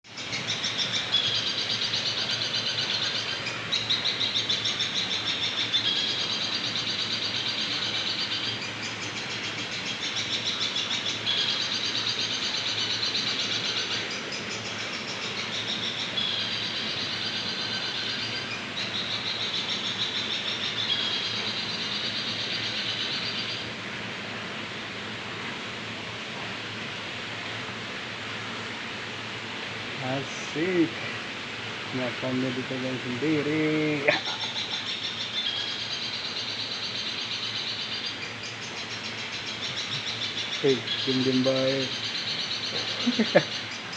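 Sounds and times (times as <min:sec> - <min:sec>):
bird chirping in high trills: 0:33.1 - 0:43.9.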